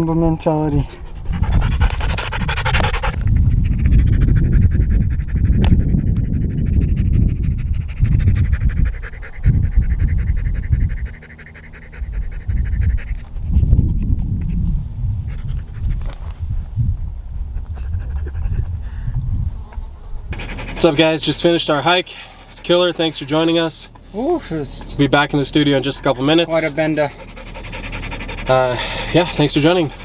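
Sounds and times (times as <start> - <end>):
dog panting: 0.0 - 16.4, 17.4 - 19.2, 20.3 - 30.0.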